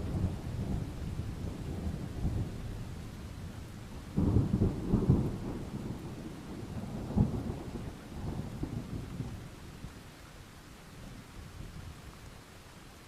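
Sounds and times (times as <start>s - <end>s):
thunder rumbling: 0.0s - 9.6s
steady rain: 0.0s - 13.0s
crackling thunder peal: 4.2s - 9.4s.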